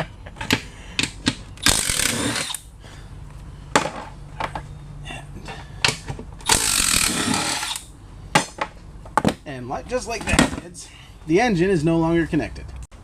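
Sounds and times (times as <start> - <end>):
impact wrench hammering: 0.4 - 2.6, 5.9 - 8.7.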